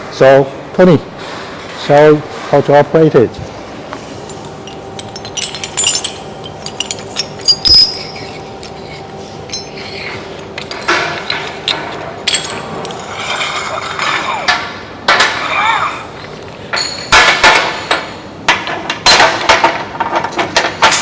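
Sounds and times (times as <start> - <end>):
faint steady hum: 0.0 - 21.0
metal clicks and clinks: 3.9 - 15.3
metal clatter: 4.0 - 8.8, 9.5 - 15.5.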